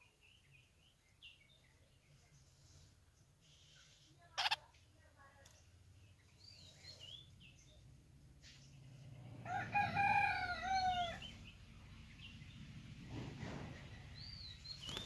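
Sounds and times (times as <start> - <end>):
faint high bird chirps: 3.4 - 4.7
rooster crowing: 9.4 - 11.2.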